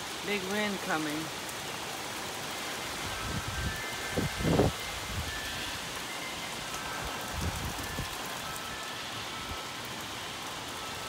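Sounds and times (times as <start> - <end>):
heavy rain pouring: 0.0 - 11.0
low wind rumbles: 2.2 - 9.6.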